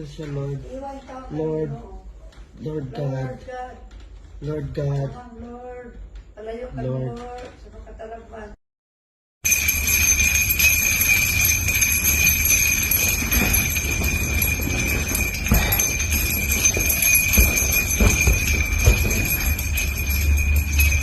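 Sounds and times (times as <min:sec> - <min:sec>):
small metal bells jingling: 0:09.4 - 0:21.0
knocks: 0:09.6 - 0:21.0.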